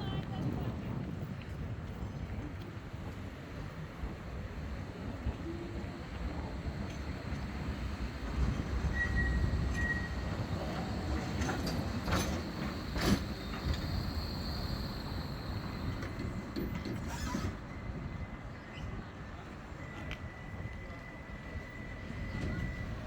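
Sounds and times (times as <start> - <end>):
tram rumble: 0.0 - 23.0
high wheel squeal: 6.3 - 19.0.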